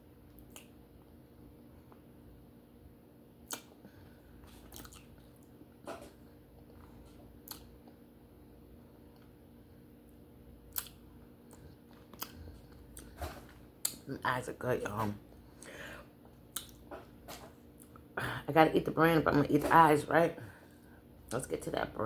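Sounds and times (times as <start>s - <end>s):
wet chewing and mouth clicks: 0.3s - 0.8s, 3.4s - 5.6s, 6.5s - 8.0s, 10.7s - 13.2s, 13.8s - 14.1s, 16.4s - 16.9s
mouth smacks: 3.4s - 3.8s.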